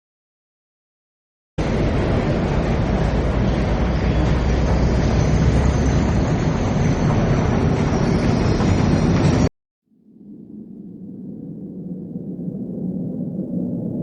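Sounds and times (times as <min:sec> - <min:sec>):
industrial mechanical rumble: 0:01.6 - 0:14.0
faint low drone: 0:09.2 - 0:14.0.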